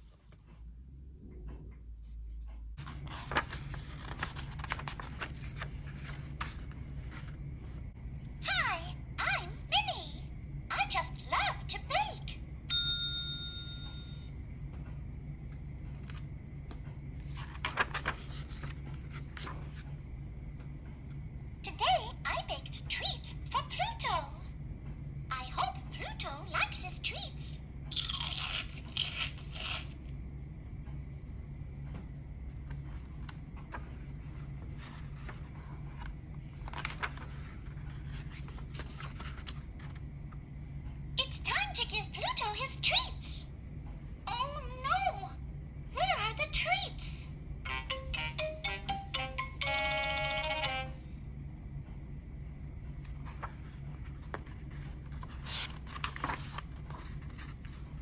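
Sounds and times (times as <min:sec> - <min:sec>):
paper page rustling: 0:02.8 - 0:07.4, 0:17.2 - 0:19.9, 0:33.0 - 0:40.1, 0:53.0 - 0:58.0
electronic ding from toy speaker: 0:12.7 - 0:14.2.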